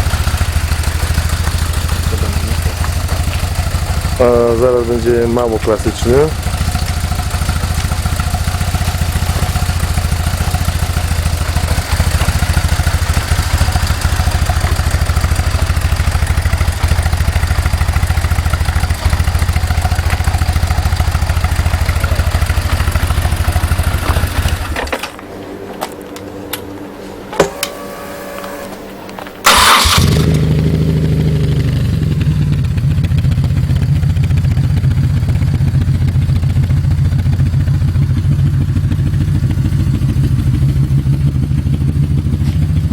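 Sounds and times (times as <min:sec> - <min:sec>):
motorcycle engine running: 0:00.0 - 0:26.1, 0:29.4 - 0:42.9
person speaking: 0:01.9 - 0:03.3, 0:04.2 - 0:06.4
clicks: 0:27.3 - 0:29.4.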